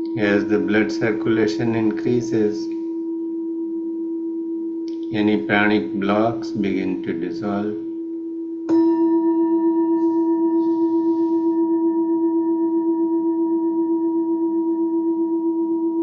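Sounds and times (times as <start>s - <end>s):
singing bowl ringing: 0.0s - 16.0s.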